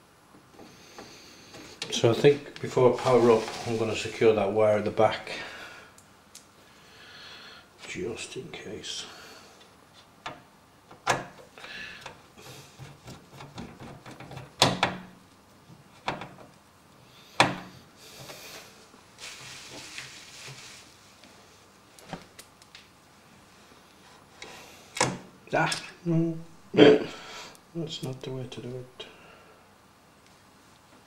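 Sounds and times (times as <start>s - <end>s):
soft rustling and scraping: 0.6s - 4.4s, 18.1s - 22.3s.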